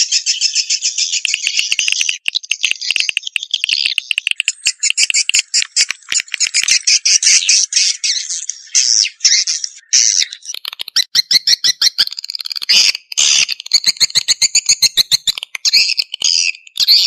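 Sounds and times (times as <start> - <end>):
high-pitched bird twittering chatter: 0.0 - 17.0.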